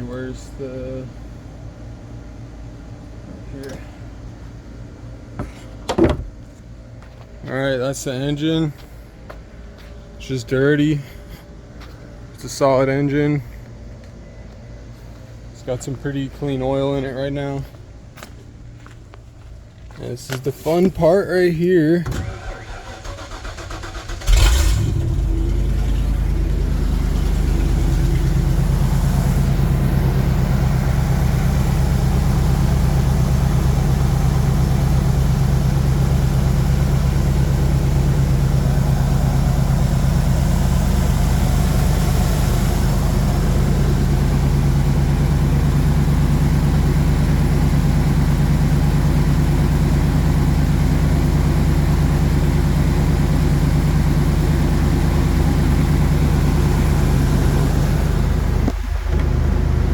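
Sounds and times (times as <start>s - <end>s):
engine starting and idling loudly: 21.8s - 59.9s.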